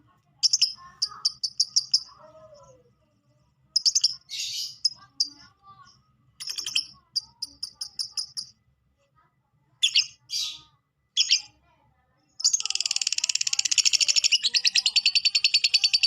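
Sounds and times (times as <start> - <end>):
lovebird chirping and squawking: 0.4 - 2.2, 3.8 - 5.0, 6.4 - 6.9, 9.8 - 11.5, 12.4 - 16.0.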